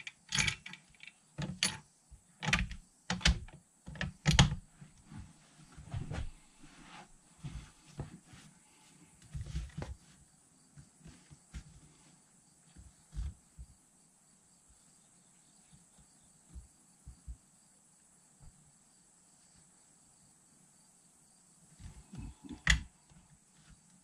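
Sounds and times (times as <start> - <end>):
handling thumps and knocks: 2.4 - 8.5, 9.2 - 12.0, 12.7 - 13.8, 15.7 - 17.4, 21.8 - 22.9.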